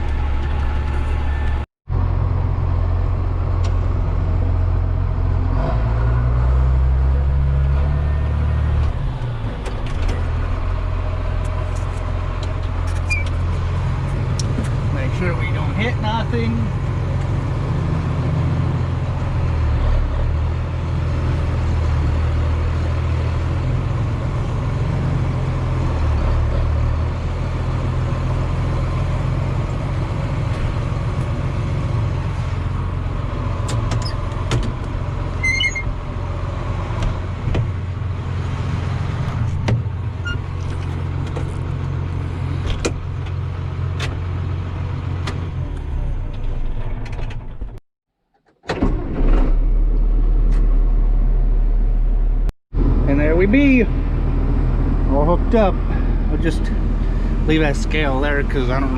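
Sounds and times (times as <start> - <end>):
tractor diesel engine running: 0.0 - 47.8, 48.7 - 58.9
sharp clicks and knocks: 33.6 - 35.0.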